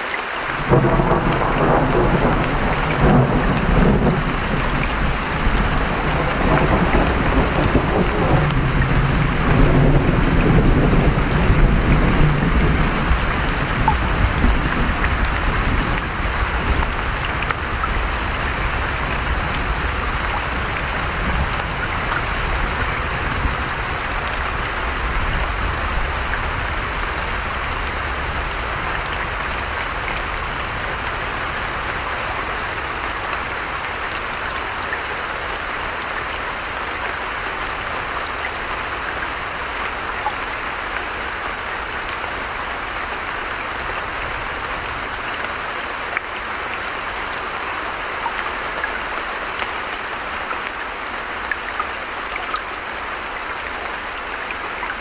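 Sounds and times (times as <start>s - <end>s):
steady rain falling: 0.0s - 55.0s
low thunder rumble: 0.6s - 23.9s.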